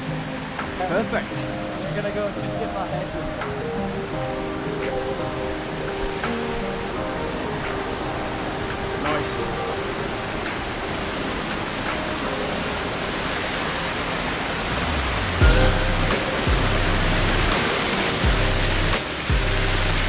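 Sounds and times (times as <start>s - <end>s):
waterfall rushing: 0.0s - 20.0s
low rumble: 14.7s - 17.6s.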